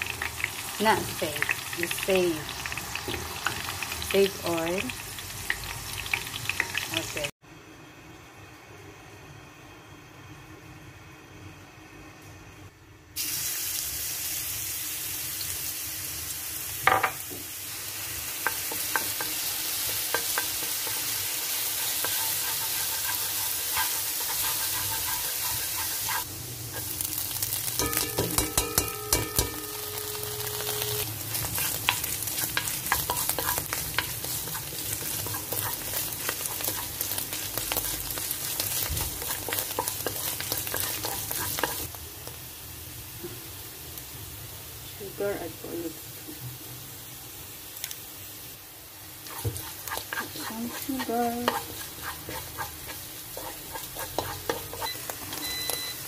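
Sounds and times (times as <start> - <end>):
garlic sizzling in hot oil: 0.0 - 7.3, 13.2 - 56.0
spatula scraping a pan: 18.4 - 26.9, 31.3 - 41.9, 49.2 - 55.9.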